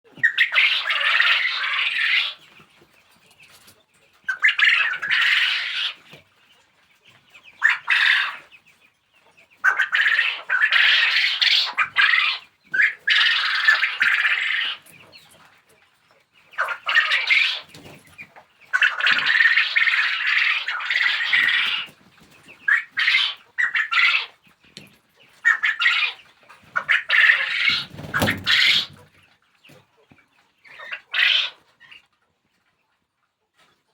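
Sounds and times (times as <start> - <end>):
quail squawking calls: 0.1 - 2.6, 4.3 - 6.2, 7.4 - 8.5, 9.6 - 15.2, 16.5 - 29.3, 30.6 - 32.0.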